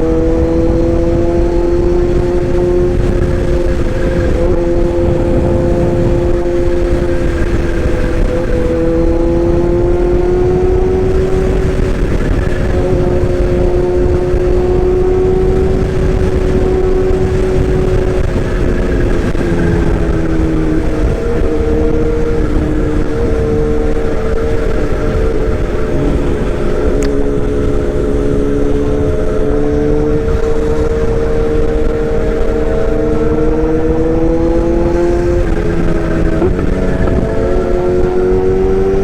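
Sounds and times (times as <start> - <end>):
road and wind rumble: 0.0 - 39.0
vehicle engine drone: 0.0 - 39.0.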